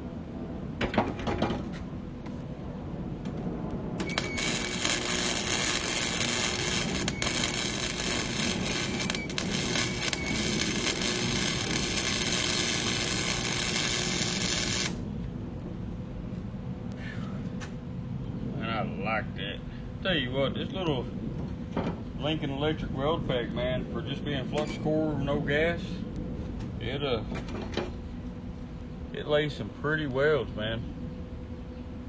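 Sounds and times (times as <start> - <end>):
welding arc crackling: 4.0 - 15.1.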